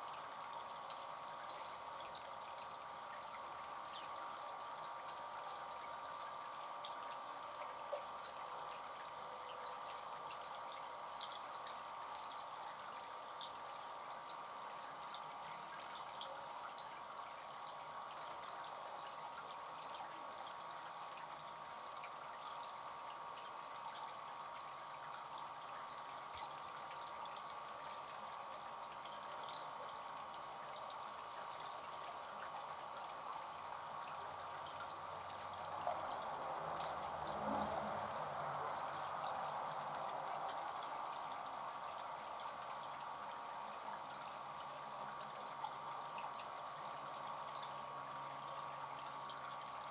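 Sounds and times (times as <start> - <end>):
fountain trickling: 0.0 - 49.9.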